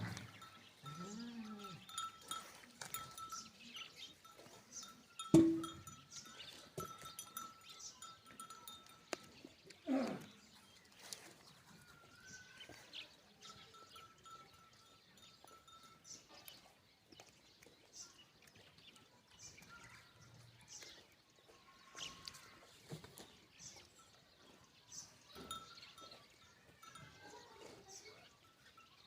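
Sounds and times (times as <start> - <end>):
bell-like clank: 5.2 - 6.2.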